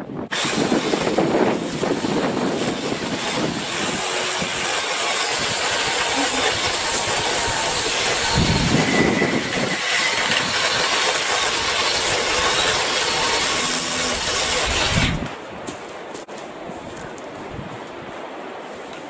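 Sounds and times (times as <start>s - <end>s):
cordless saw cutting branches: 0.3s - 15.4s.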